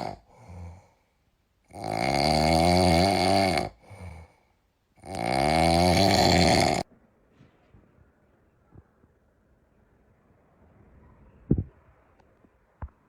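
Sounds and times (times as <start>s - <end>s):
person snoring: 0.0s - 1.0s, 1.7s - 4.4s, 5.0s - 6.8s.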